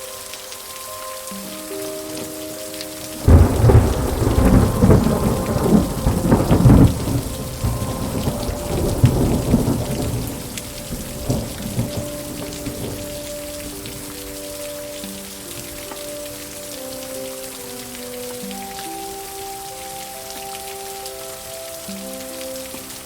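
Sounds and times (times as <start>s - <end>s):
steady rain: 0.0s - 23.0s
thunder rumbling: 3.2s - 14.8s.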